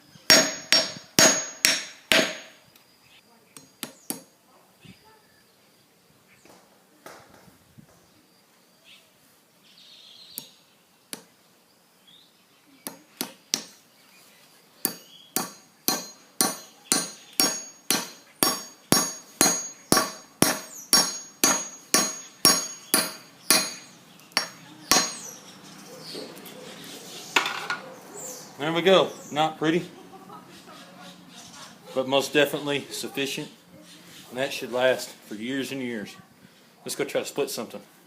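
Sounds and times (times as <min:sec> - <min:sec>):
hammer striking wooden wedge: 0:00.3 - 0:02.5, 0:12.9 - 0:13.8, 0:14.8 - 0:25.2.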